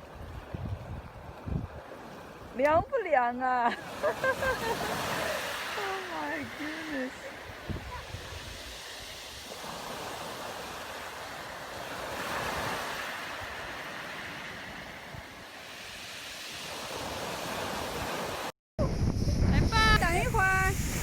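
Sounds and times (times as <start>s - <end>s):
wind noise on microphone: 0.0s - 1.9s, 7.4s - 10.5s, 16.6s - 21.0s
sea waves washing onto shore: 0.0s - 18.5s, 19.4s - 21.0s.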